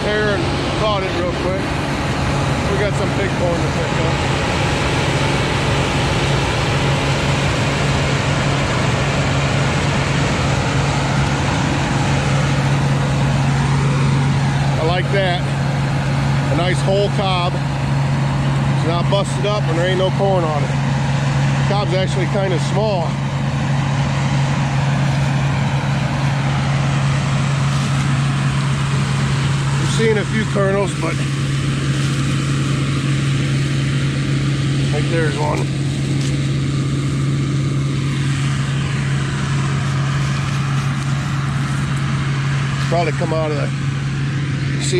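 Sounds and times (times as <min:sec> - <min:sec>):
combine harvester mechanical drone: 0:00.0 - 0:44.9.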